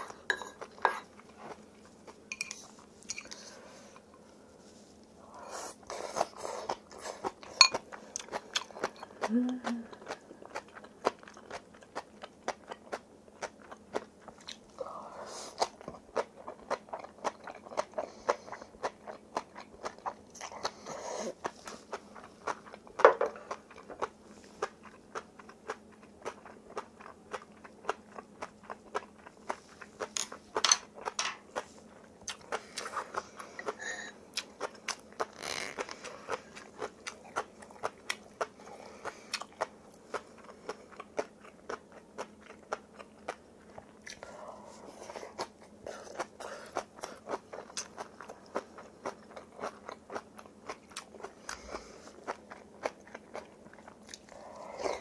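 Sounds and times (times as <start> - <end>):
crunchy wet chewing: 9.9 - 14.8, 15.5 - 55.0.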